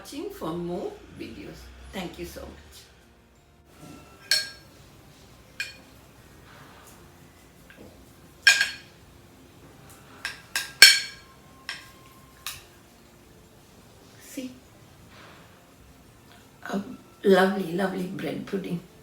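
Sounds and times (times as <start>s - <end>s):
cutlery clinking against a dish: 3.8s - 9.0s, 9.8s - 12.8s.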